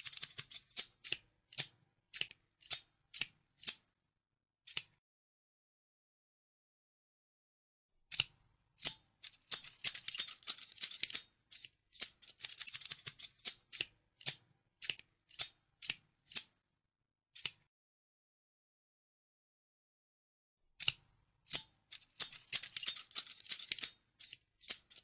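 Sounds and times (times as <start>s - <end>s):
scissors snipping: 0.0s - 3.8s, 4.7s - 5.0s, 8.1s - 16.5s, 17.4s - 17.6s, 20.8s - 25.0s.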